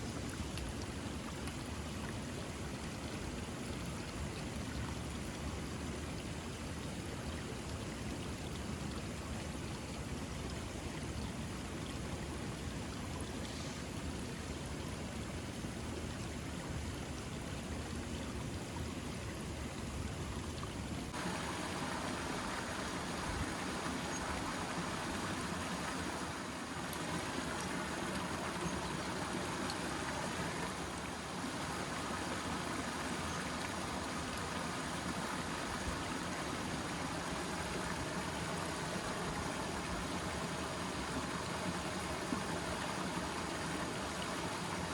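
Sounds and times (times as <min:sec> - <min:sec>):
water rushing: 0:11.6 - 0:44.9.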